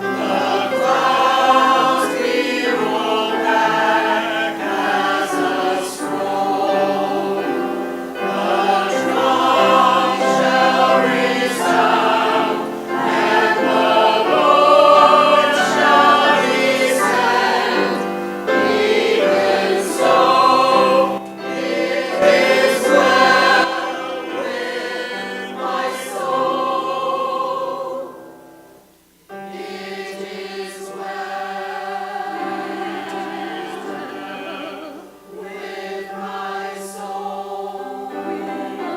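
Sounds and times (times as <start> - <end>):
church choir singing: 0.0 - 38.9.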